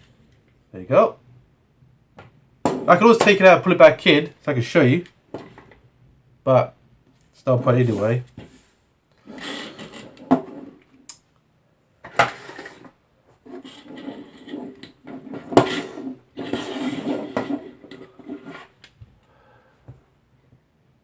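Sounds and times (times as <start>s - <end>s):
rustling and scraping of hardware: 7.6s - 10.9s, 12.0s - 18.9s.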